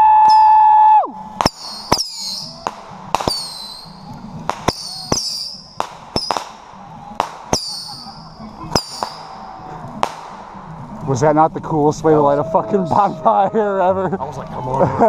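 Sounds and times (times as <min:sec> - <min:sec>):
falling high whistle: 0:00.0 - 0:06.4, 0:07.5 - 0:09.5
firework sharp pops: 0:01.3 - 0:11.2.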